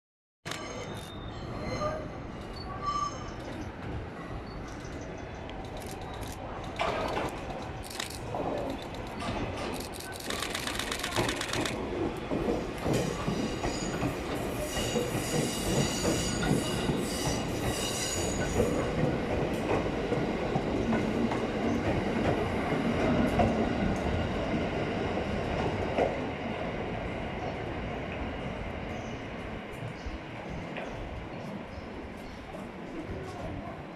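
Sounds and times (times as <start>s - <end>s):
electric train rumbling on rails: 0.5s - 33.9s
high wheel squeal: 0.6s - 3.5s.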